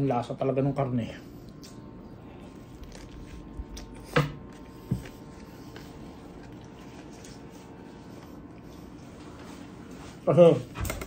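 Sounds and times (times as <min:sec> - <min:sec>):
man chewing burger: 0:01.3 - 0:09.8.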